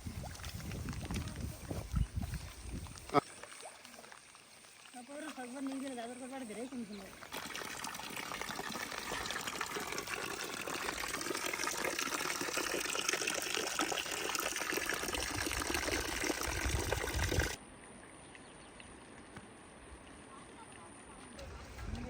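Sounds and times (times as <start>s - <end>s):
water trickling and splashing: 0.0s - 17.6s.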